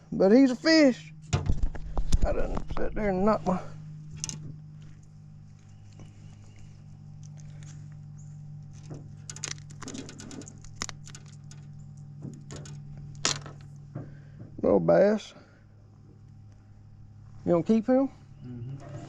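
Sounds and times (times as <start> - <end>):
steady low hum: 0.0 - 19.0
fish tapping and rattling in canoe: 8.8 - 14.2.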